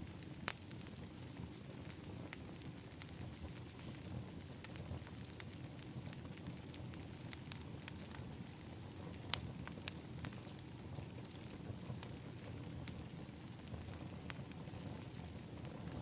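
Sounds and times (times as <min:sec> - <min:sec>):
low fire rumble: 0:00.0 - 0:16.0
wood fire crackling and popping: 0:00.0 - 0:16.0.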